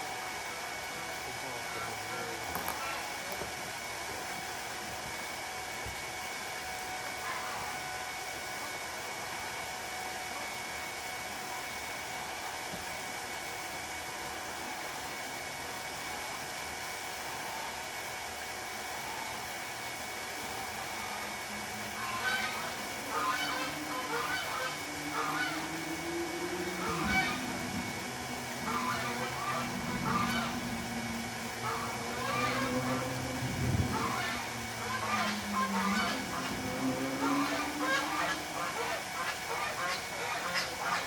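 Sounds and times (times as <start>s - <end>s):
goose honking: 21.9s - 41.0s.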